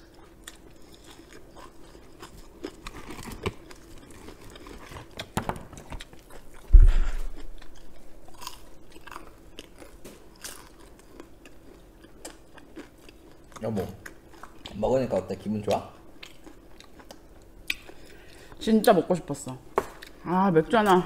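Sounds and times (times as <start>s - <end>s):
chewing crisp fried chicken: 0.0s - 18.6s
loud low thump: 6.7s - 7.3s.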